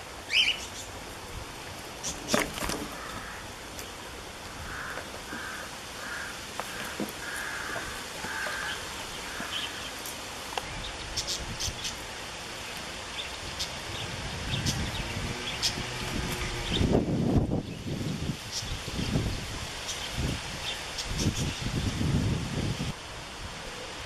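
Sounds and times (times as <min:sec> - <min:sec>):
bird calling: 0:00.0 - 0:01.0, 0:02.0 - 0:17.0.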